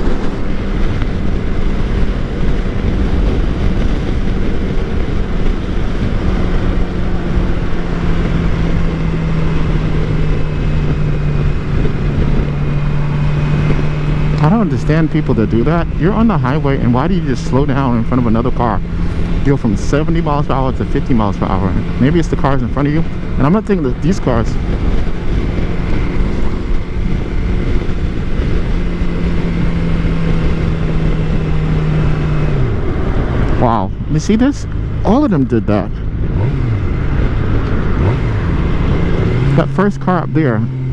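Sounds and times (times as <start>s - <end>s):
wind rushing: 0.0s - 39.6s
motorcycle engine running: 0.0s - 40.9s
road noise: 0.0s - 40.9s.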